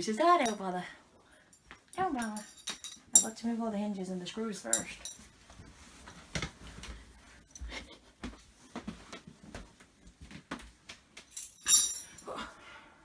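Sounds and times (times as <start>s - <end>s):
ringing metallic clink: 11.4s - 12.2s.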